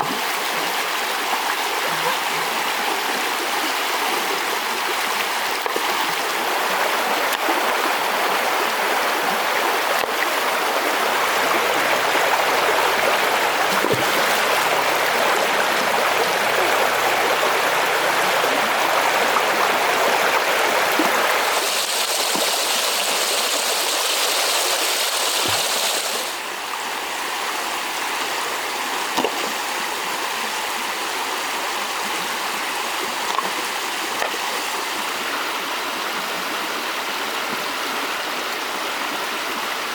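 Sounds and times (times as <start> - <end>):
flowing river water: 0.0 - 39.9.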